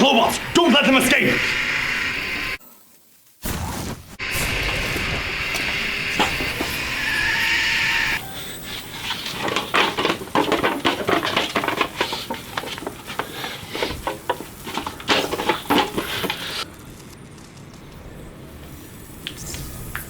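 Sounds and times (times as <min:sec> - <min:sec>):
clattering knocks and scuffs: 0:09.0 - 0:16.6.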